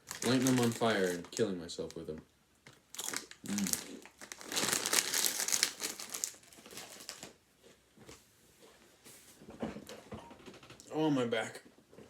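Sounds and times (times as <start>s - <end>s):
chip bag crinkling: 0.0s - 7.4s.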